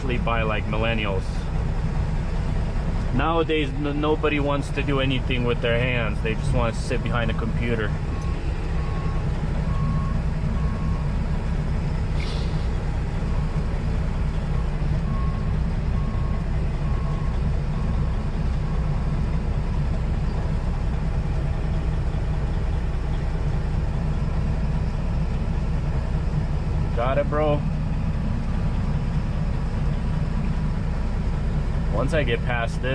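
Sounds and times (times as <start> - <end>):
diesel truck engine running: 0.0 - 32.9
reversing alarm beeping: 8.1 - 11.2, 14.5 - 19.2.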